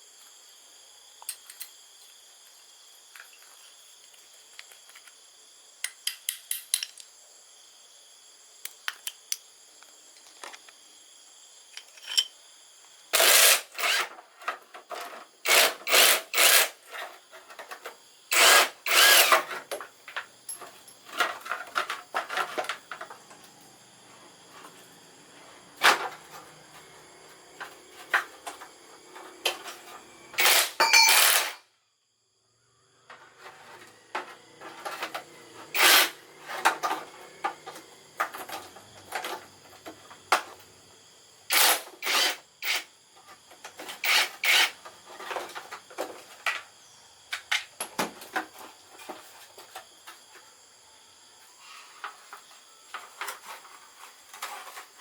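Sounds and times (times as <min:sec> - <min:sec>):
loud noisy tool strokes: 0:13.2 - 0:14.1, 0:15.4 - 0:16.8, 0:18.3 - 0:19.5, 0:30.4 - 0:31.6, 0:35.6 - 0:36.4, 0:41.5 - 0:42.8, 0:44.0 - 0:44.8.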